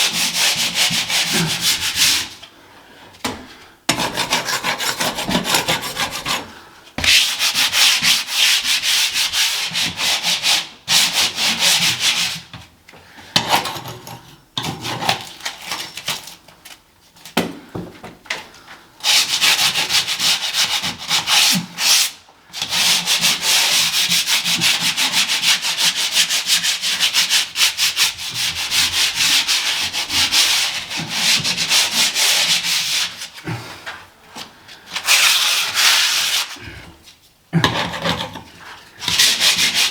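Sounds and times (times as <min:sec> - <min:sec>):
sandpaper rubbing on ceiling: 0:00.0 - 0:02.4, 0:03.9 - 0:12.5, 0:19.0 - 0:33.4, 0:34.9 - 0:36.7, 0:38.7 - 0:39.9.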